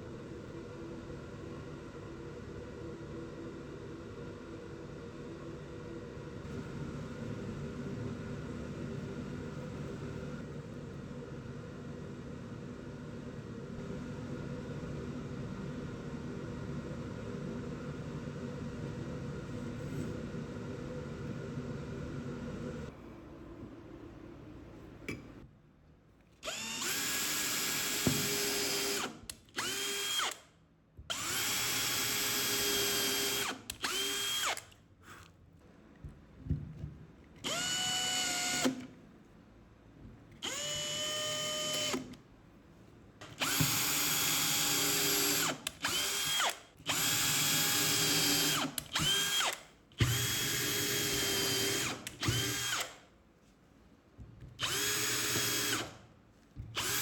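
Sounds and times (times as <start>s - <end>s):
power drill whining: 26.4s - 30.4s, 31.1s - 34.7s, 37.4s - 38.8s, 40.4s - 42.2s, 43.3s - 53.0s, 54.6s - 56.0s, 56.8s - 57.0s.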